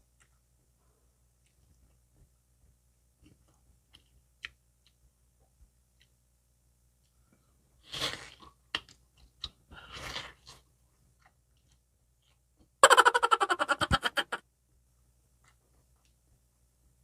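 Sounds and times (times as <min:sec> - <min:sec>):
slurping noodles: 0:07.8 - 0:08.6, 0:09.8 - 0:10.6
rapidly pulsing pitched vocal burst: 0:12.8 - 0:14.4.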